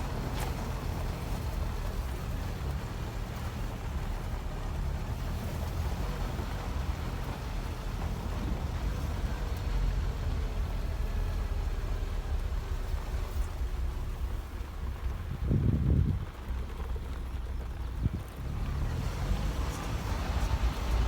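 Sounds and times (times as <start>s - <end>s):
engine running: 0.0s - 21.0s
wind noise: 15.0s - 16.5s.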